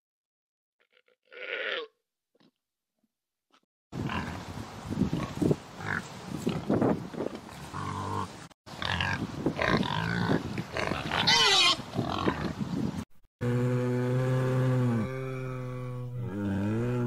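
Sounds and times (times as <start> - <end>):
pigs grunting: 7.6 - 12.6, 13.4 - 17.0
pig squealing: 7.8 - 12.4
long low animal call: 13.4 - 17.0.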